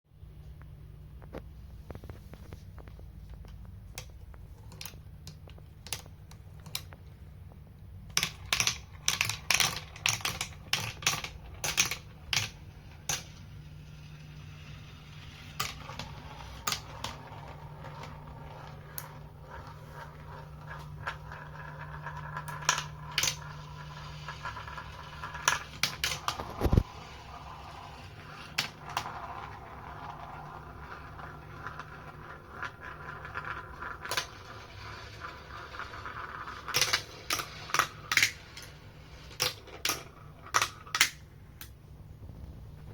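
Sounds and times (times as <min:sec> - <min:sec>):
marbles rattling down plastic track: 0:08.1 - 0:41.2.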